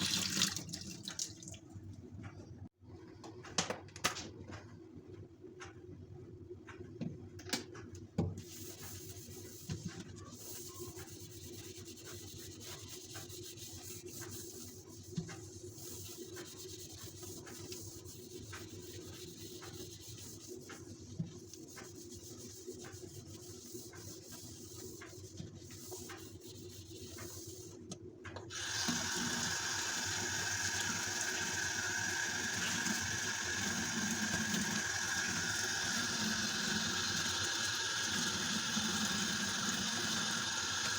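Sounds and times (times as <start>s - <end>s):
water running into sink: 0.0s - 1.7s, 28.5s - 40.9s.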